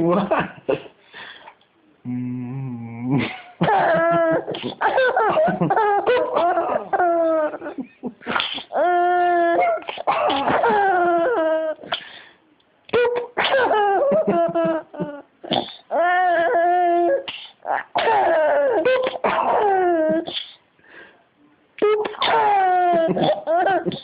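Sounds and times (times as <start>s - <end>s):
sneeze-like vocal burst: 8.3s - 8.8s, 9.6s - 10.7s, 15.5s - 15.9s, 17.2s - 20.6s.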